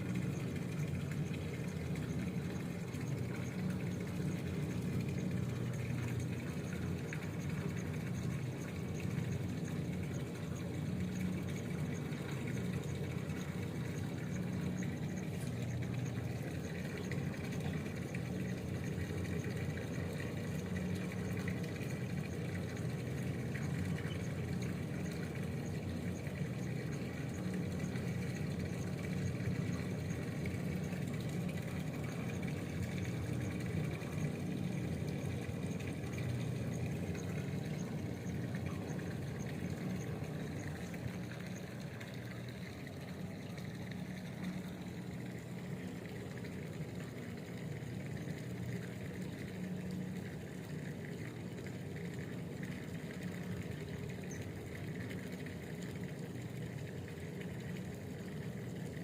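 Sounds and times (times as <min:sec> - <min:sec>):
motor droning: 0:00.0 - 0:59.0.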